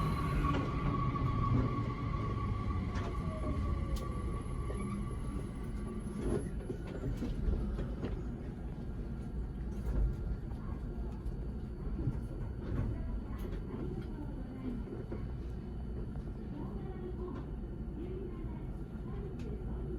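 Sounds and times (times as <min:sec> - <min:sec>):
electric train rumbling: 0:00.0 - 0:10.3.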